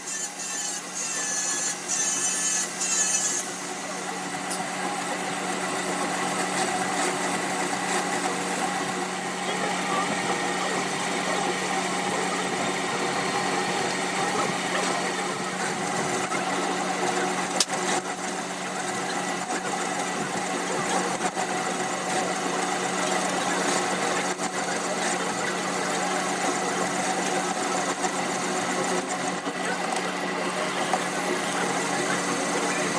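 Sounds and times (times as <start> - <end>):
machine humming and whining: 0.0 - 32.9.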